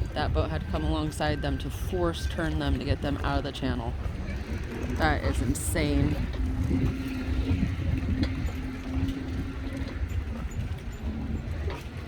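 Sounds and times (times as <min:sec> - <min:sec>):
wind buffeting microphone: 0:00.0 - 0:12.0
steady low hum: 0:03.9 - 0:12.0.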